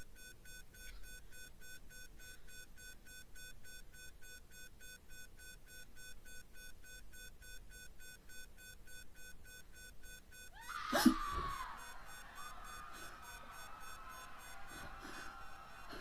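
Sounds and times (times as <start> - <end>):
rapid electronic beeping: 11.8 - 14.8.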